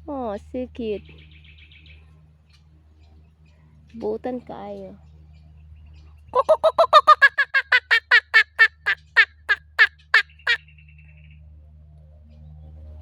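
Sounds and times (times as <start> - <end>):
kookaburra laughing call: 6.4 - 10.6.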